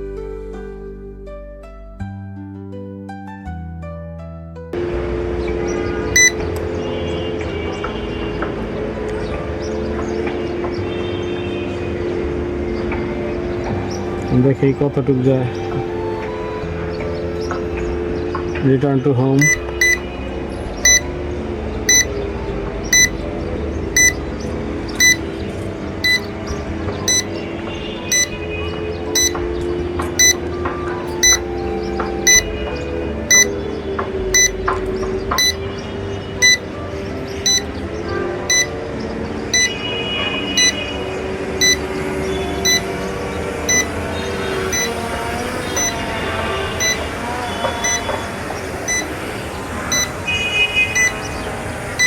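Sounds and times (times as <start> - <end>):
short high beeps: 6.2 - 6.4, 19.4 - 20.0, 20.9 - 21.1, 24.0 - 24.2, 25.0 - 25.2, 26.0 - 26.2, 27.1 - 27.3, 28.1 - 28.4, 29.2 - 29.4, 30.2 - 30.4, 31.2 - 31.4, 32.3 - 32.5, 33.3 - 33.5, 34.4 - 34.6, 35.4 - 35.6, 36.4 - 36.6, 37.4 - 37.6, 39.6 - 39.8, 40.6 - 40.8, 42.6 - 42.8, 43.7 - 43.9, 45.8 - 46.0, 46.8 - 47.0, 47.8 - 48.1.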